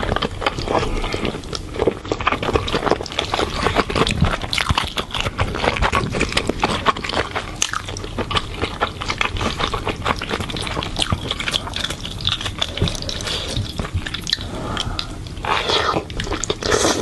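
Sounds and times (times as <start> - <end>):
wet chewing of noodles: 0.0 - 17.0.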